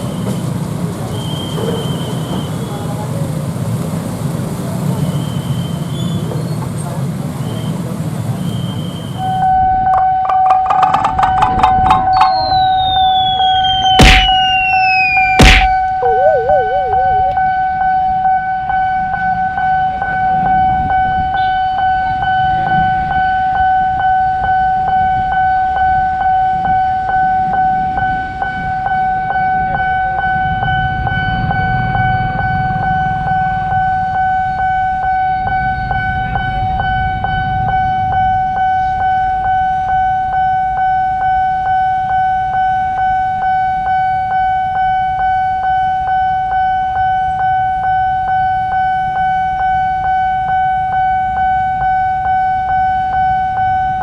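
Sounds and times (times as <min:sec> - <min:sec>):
road traffic rumble: 0:00.0 - 0:26.7
pulsing level-crossing alarm tone: 0:09.3 - 0:22.6.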